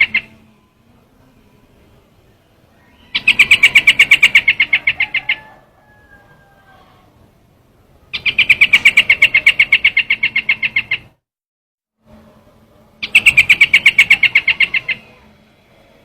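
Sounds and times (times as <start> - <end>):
bird chattering call: 0.0 - 0.4, 2.8 - 5.6, 8.1 - 11.2, 13.0 - 15.3.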